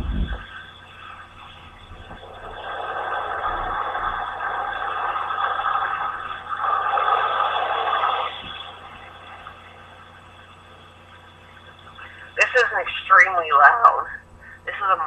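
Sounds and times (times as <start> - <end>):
car wash water jets spraying: 0.4 - 11.3.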